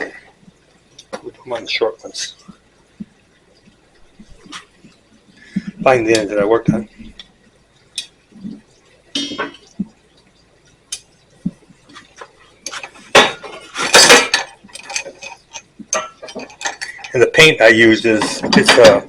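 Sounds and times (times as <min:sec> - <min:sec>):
metal rods clinking and clanking: 0:12.7 - 0:17.2, 0:18.0 - 0:19.0.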